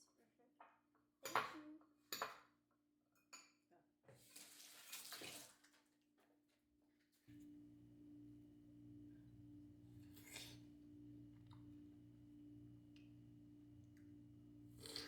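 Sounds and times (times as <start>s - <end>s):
low steady hum: 7.3s - 15.0s.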